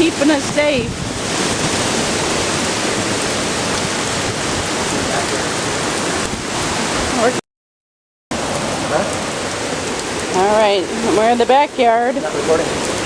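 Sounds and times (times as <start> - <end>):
wind blowing on microphone: 0.0 - 7.4.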